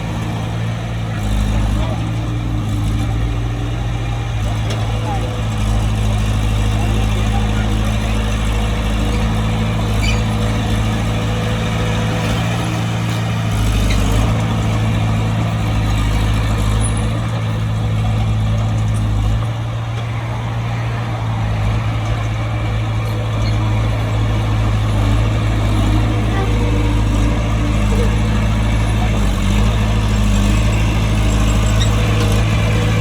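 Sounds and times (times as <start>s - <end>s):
diesel engine droning: 0.0s - 33.0s.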